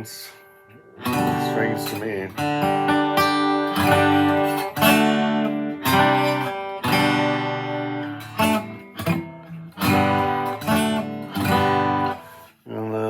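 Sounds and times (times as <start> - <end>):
acoustic guitar strummed chords: 0.0 - 12.6.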